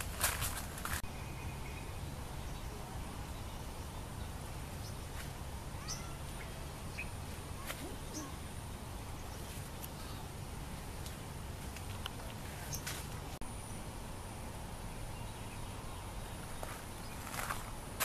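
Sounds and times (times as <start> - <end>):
low outdoor rumble: 0.0 - 18.0
faint bird chirps: 5.8 - 10.3.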